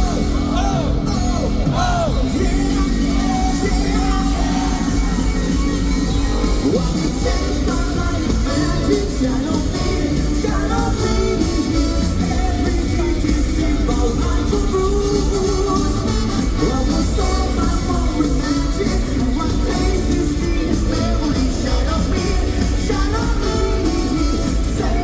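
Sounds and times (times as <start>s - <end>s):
lead vocals singing: 0.0s - 25.0s
live funk band playing: 0.0s - 25.0s.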